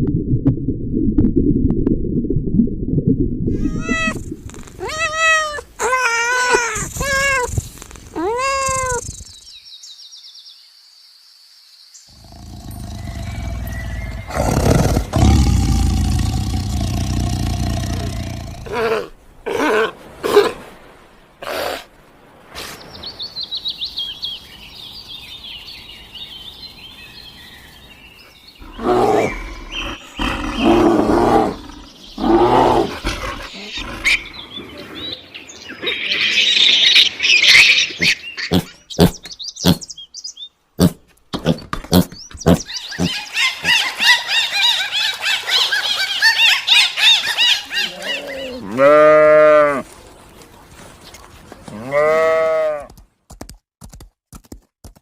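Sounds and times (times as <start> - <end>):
loud low animal calls: 3.5 - 4.2
birds twittering: 11.9 - 18.7, 22.8 - 49.0.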